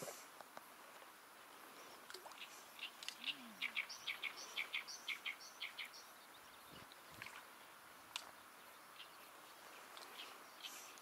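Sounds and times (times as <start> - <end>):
faint outdoor hiss: 0.0 - 11.0
songbird singing sharp notes: 2.4 - 7.0.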